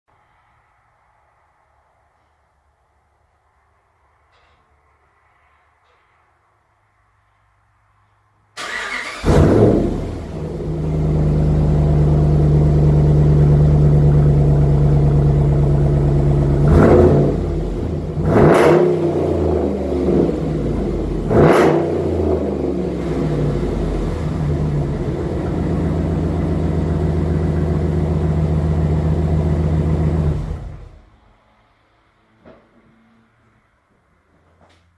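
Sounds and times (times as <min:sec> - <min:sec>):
engine cranking and starting: 0:08.6 - 0:10.4
engine idling: 0:08.6 - 0:18.3, 0:22.9 - 0:31.2
engine revving: 0:08.6 - 0:31.2.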